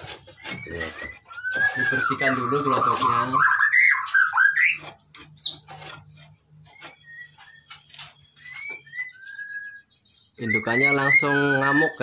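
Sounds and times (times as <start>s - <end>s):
knocks and scrapes on wooden box: 0.0s - 3.5s, 4.6s - 8.9s
high whistled bird notes: 0.0s - 5.7s, 6.6s - 12.0s
bird squawking: 0.0s - 12.0s.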